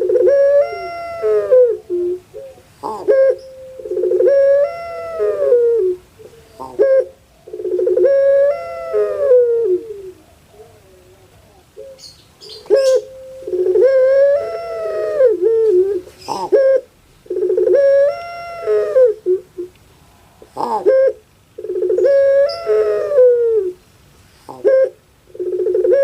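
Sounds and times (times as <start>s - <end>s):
dove cooing: 0.0s - 19.8s, 20.4s - 23.8s, 24.5s - 26.0s.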